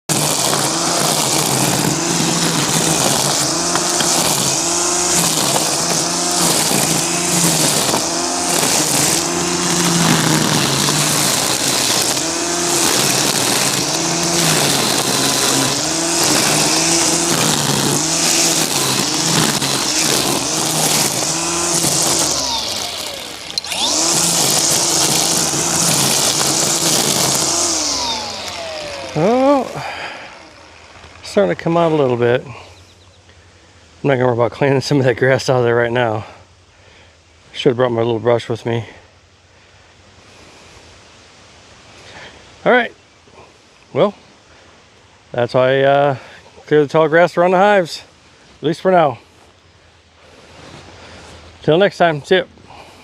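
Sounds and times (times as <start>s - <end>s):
string trimmer motor revving: 0.0s - 32.6s.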